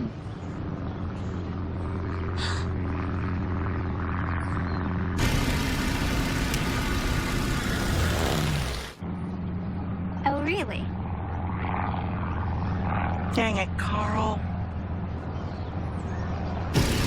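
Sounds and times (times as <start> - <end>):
low engine drone: 0.0 - 17.0
loud rushing hiss: 5.2 - 9.0, 16.8 - 17.0.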